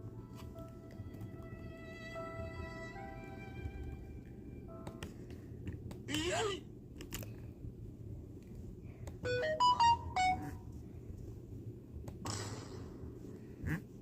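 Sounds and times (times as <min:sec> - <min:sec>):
electronic beeping jingle: 0:09.3 - 0:10.6.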